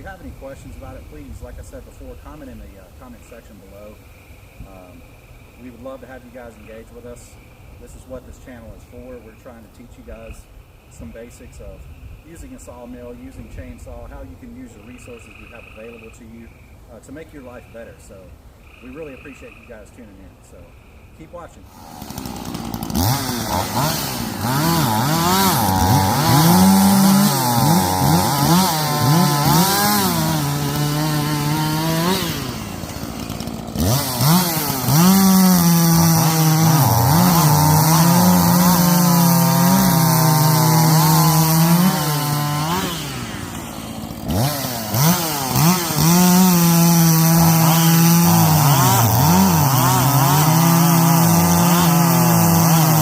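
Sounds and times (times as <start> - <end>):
chainsaw cutting wood: 21.7 - 53.0.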